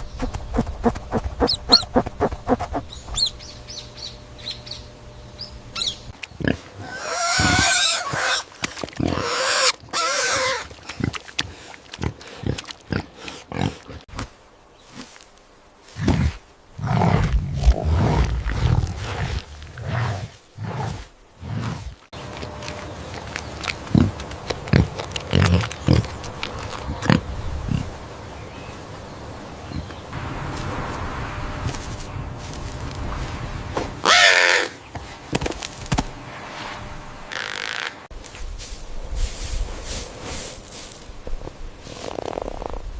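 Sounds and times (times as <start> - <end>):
pig squealing: 6.8 - 8.5, 9.1 - 10.7, 37.3 - 38.0
pig grunting: 9.0 - 14.1, 16.0 - 27.9.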